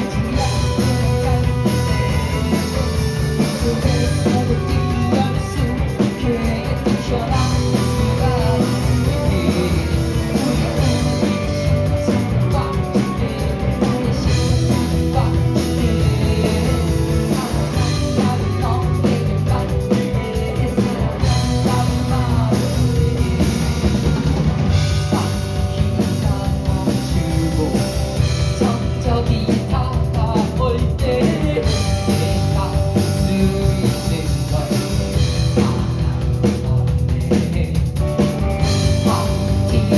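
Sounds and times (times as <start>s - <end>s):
drum kit: 0.0s - 39.9s
rock band playing live: 0.0s - 39.9s.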